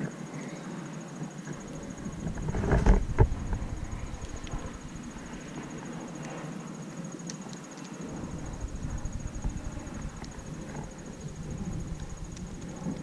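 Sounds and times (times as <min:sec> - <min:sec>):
faint high insect-like trill: 0:00.0 - 0:13.0
wind buffeting microphone: 0:01.5 - 0:06.2, 0:08.0 - 0:13.0.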